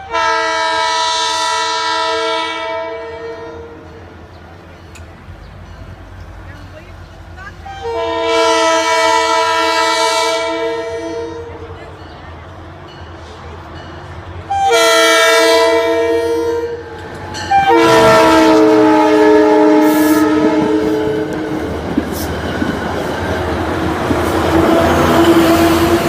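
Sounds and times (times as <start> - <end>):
train horn blasts: 0.0 - 4.0, 7.6 - 11.6, 14.5 - 21.8
train rumble and wheel noise: 0.0 - 26.0.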